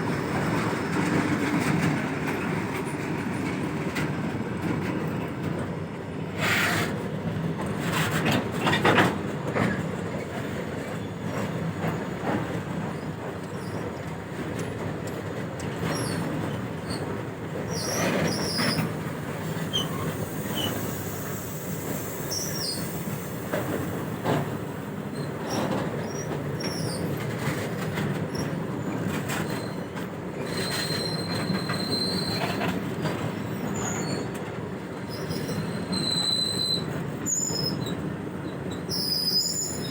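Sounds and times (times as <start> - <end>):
train wagons rumbling and clattering: 0.0 - 39.9
high wheel squeals: 17.7 - 23.7, 28.3 - 32.8, 33.4 - 34.4, 35.1 - 39.9.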